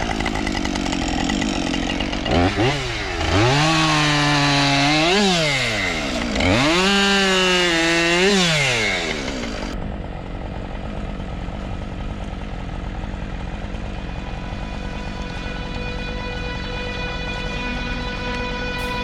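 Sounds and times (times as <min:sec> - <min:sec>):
chainsaw engine revving: 0:00.0 - 0:09.8
low hum: 0:09.1 - 0:19.0.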